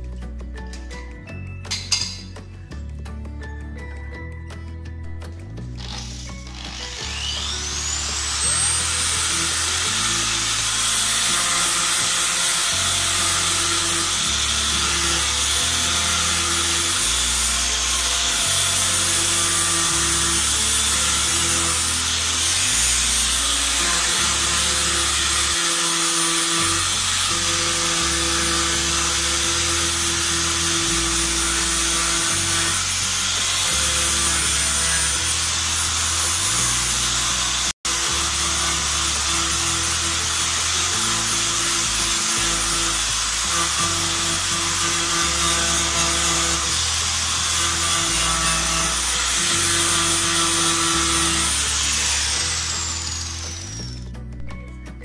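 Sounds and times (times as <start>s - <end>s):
background music with bass: 0.0s - 55.0s
electric sander whining: 5.6s - 54.1s.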